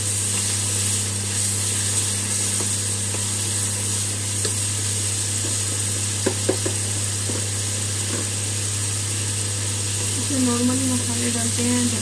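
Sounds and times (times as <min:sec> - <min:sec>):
onions and tomatoes sizzling: 0:00.0 - 0:12.0
wooden spatula knocking on pan: 0:06.2 - 0:07.4.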